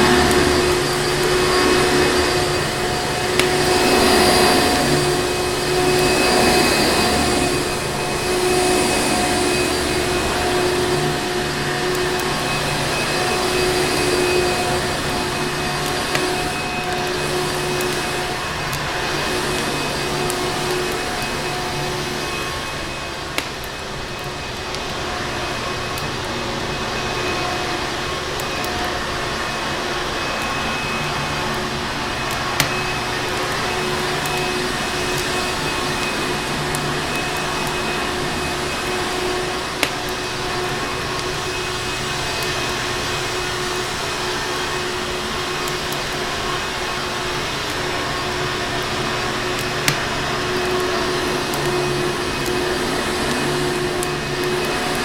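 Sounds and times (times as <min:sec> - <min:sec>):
vacuum cleaner motor whirring: 0:00.0 - 0:55.0.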